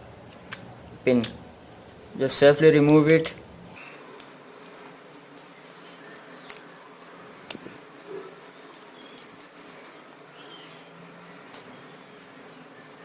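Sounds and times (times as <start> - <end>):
small parts clicking: 4.2 - 5.6, 6.4 - 9.6, 11.5 - 11.8
bird chirping: 9.8 - 11.0.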